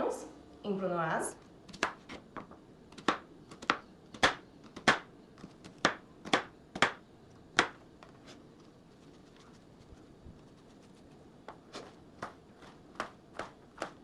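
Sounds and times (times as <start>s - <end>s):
knife chopping on cutting board: 12.2s - 14.0s.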